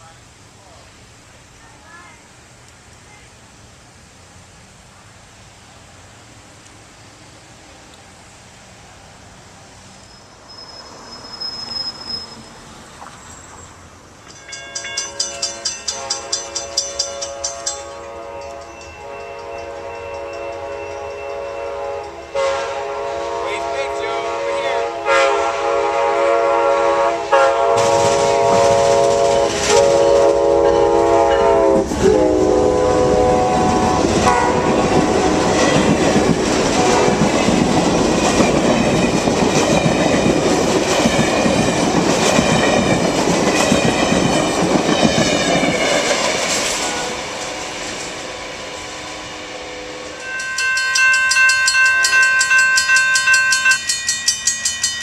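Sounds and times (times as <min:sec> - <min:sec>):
train wheels clattering: 0:14.2 - 0:22.2, 0:27.6 - 0:32.2, 0:33.6 - 0:49.3
high ringing bell strikes: 0:14.3 - 0:21.6, 0:50.2 - 0:55.0
train horn: 0:14.8 - 0:37.5, 0:45.0 - 0:51.2.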